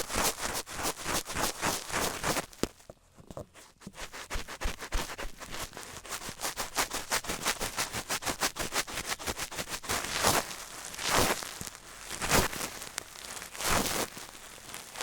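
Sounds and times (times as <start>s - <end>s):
rapid tapping and scratching: 0.0s - 2.7s, 3.9s - 10.4s.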